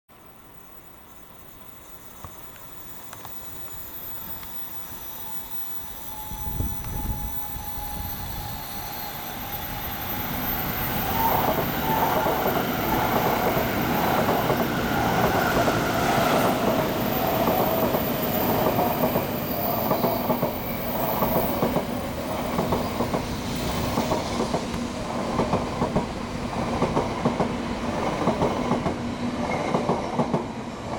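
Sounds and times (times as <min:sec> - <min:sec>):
trains passing with wheel clatter: 0:00.2 - 0:30.9.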